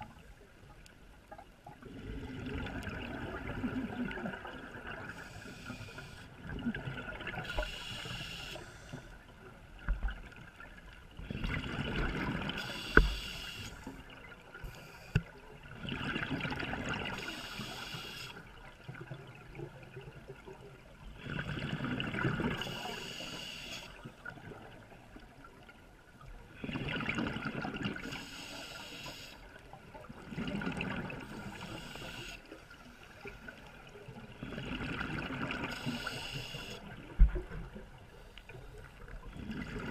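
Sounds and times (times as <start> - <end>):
scuba regulator hissing inhale: 5.1 - 6.3, 7.4 - 9.2, 12.6 - 13.9, 14.6 - 15.2, 17.2 - 18.4, 22.6 - 24.0, 28.0 - 29.5, 31.2 - 32.6, 35.6 - 36.9.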